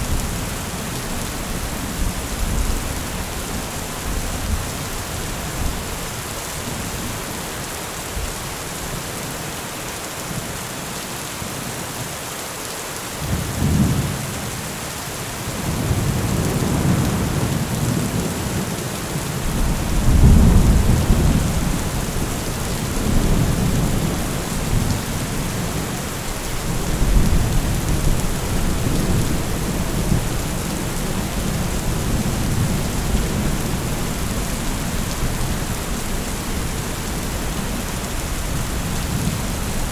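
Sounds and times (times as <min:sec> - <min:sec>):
heavy rain falling: 0:00.0 - 0:39.9
thunder rolling: 0:19.4 - 0:25.9.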